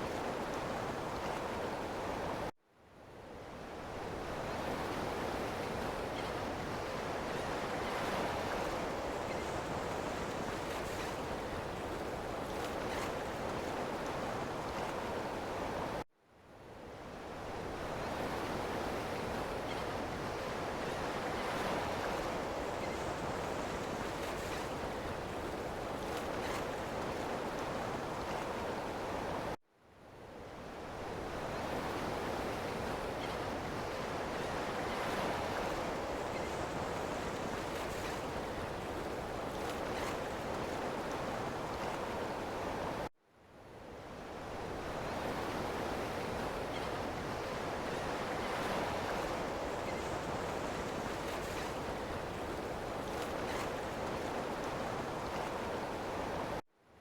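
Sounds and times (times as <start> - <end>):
ocean surf washing: 44.4 - 56.6.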